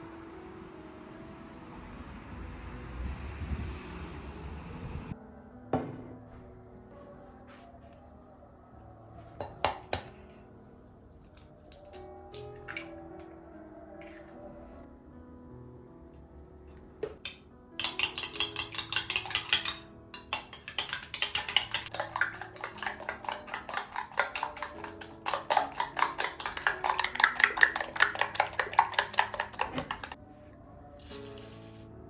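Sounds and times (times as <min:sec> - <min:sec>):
soft background music: 0:00.0 - 0:32.0
whisk clinking in a bowl: 0:17.8 - 0:30.2.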